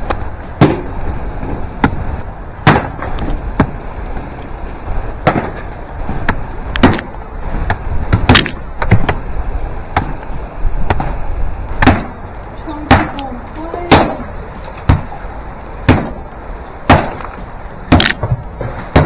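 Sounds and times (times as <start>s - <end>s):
hand tool chopping ice: 8.3s - 8.6s, 17.9s - 18.3s.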